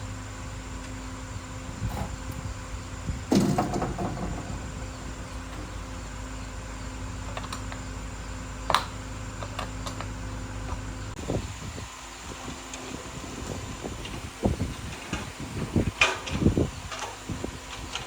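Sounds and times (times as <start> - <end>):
steady mechanical hum: 0.0 - 18.0
clattering rattle: 3.3 - 6.0.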